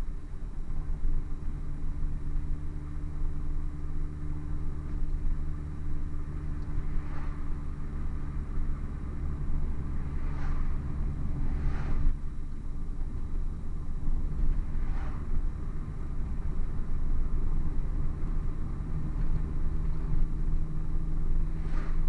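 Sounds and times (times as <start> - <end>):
car engine and exhaust cruising: 0.0 - 22.0
brief whooshes: 10.2 - 10.8, 11.4 - 12.2, 14.8 - 15.2.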